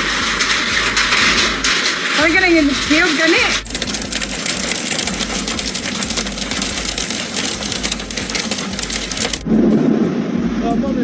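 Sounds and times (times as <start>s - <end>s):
hail pelting a hard surface: 1.7s - 9.8s.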